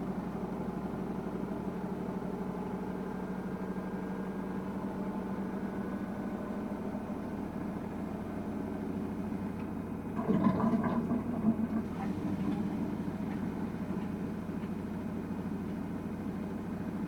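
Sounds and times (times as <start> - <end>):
washing machine drum hum: 10.1 - 15.8.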